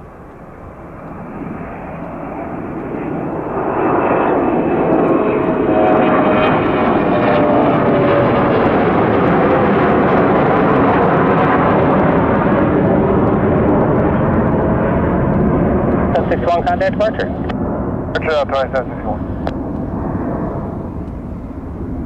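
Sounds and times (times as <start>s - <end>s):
jet engine noise: 0.0s - 22.0s
faint whine: 13.3s - 22.0s.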